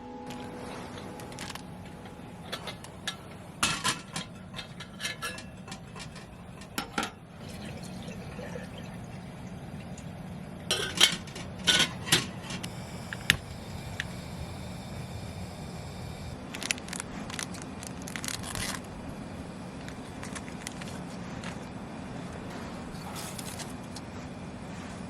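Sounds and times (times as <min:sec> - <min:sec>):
steady low hum: 0:00.0 - 0:25.0
dishes and cutlery clattering: 0:02.4 - 0:07.2, 0:10.7 - 0:12.6.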